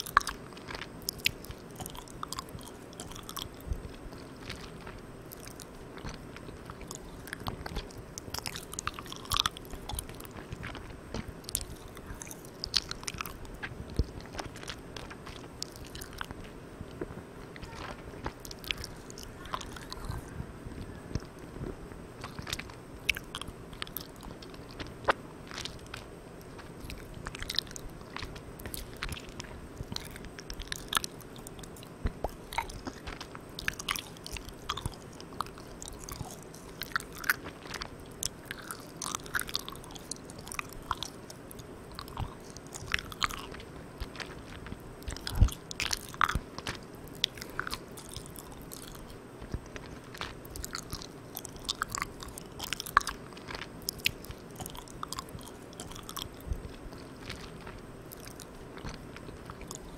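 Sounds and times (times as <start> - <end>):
chewing sticky candy: 0.0 - 59.9
steady recorder hiss: 0.0 - 59.9
mouth popping: 17.0 - 59.9.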